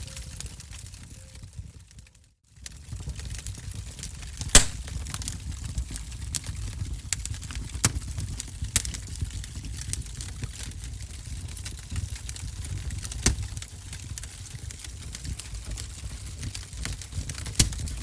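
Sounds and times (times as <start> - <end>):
wood fire crackling: 2.6 - 18.0
sharp pops and snaps: 4.5 - 4.9, 13.2 - 13.5, 17.6 - 18.0.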